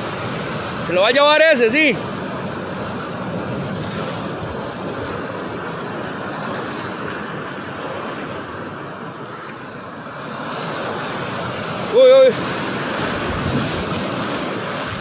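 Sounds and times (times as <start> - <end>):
surf rushing: 0.0 - 15.0
wind buffeting microphone: 10.6 - 15.0.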